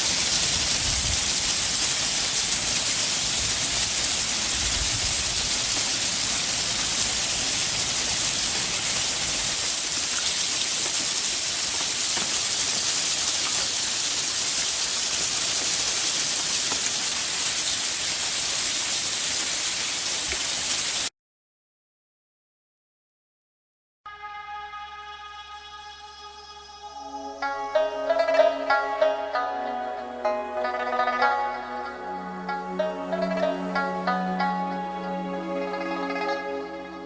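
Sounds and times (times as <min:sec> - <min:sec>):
hail and rain pelting down: 0:00.0 - 0:21.1
faint ticks of hail: 0:05.2 - 0:21.0.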